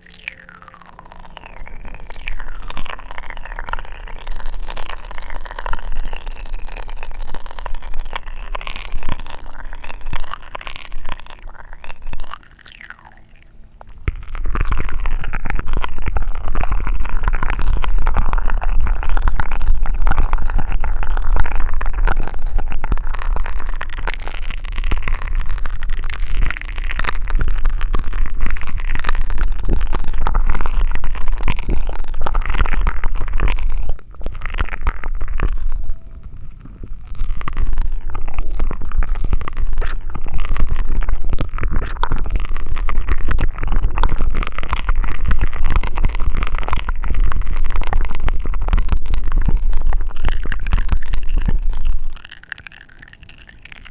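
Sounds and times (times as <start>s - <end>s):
popping candy crackling: 0.0s - 53.9s
sucking through a straw: 0.0s - 53.9s
low rumble: 13.4s - 52.2s.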